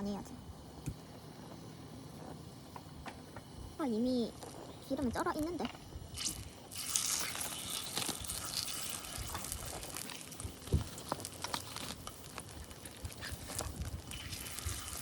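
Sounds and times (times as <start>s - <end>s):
batter sizzling in a mould: 6.1s - 15.0s.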